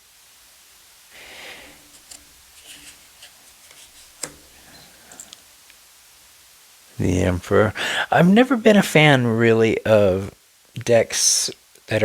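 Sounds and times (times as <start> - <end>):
cards sliding against cards: 1.4 - 5.4
card tapped down: 4.2 - 4.6.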